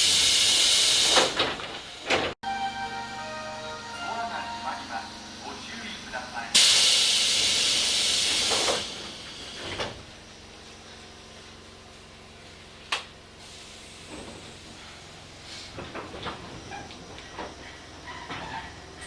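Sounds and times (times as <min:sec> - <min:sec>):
air hiss of train doors: 0:00.0 - 0:02.2, 0:06.6 - 0:10.0, 0:13.4 - 0:15.8
train car low hum: 0:00.0 - 0:19.0.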